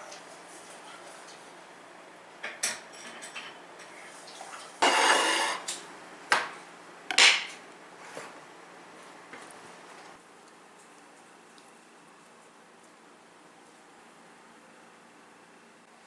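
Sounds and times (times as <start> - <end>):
rough scraping: 4.8 - 5.7.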